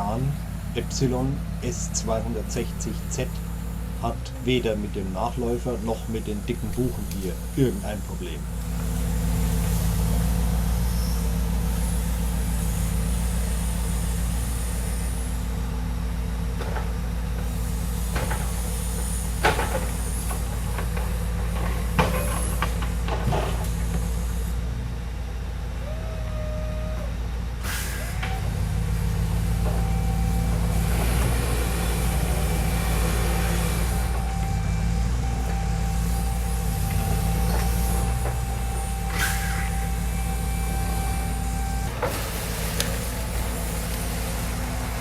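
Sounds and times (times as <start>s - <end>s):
thin whine: 0.0s - 15.8s, 27.6s - 45.0s
truck engine running: 0.0s - 45.0s.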